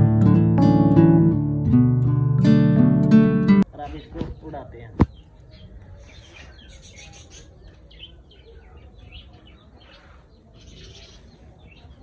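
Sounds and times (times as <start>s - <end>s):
small birds chirping: 3.7s - 12.0s.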